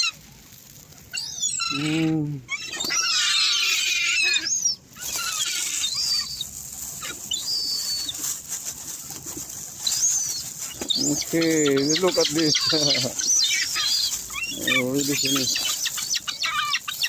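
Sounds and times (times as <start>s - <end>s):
high gull calls: 1.1s - 8.4s, 9.4s - 17.0s
wings flapping: 5.0s - 17.0s.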